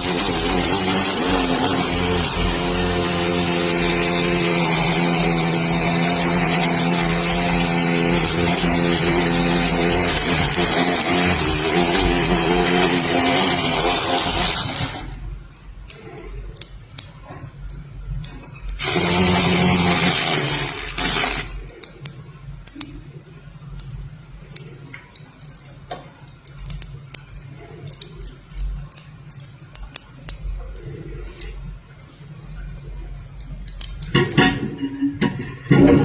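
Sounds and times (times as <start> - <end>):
small motor running loudly: 0.0 - 15.2, 18.8 - 21.6.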